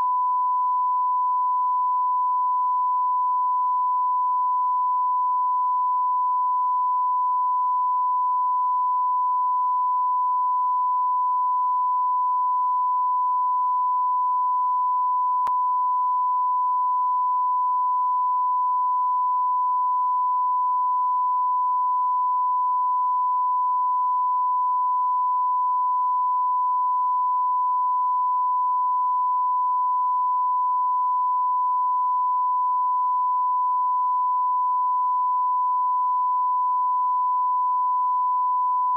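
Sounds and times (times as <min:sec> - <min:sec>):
high-pitched sine tone: 0:00.0 - 0:38.9.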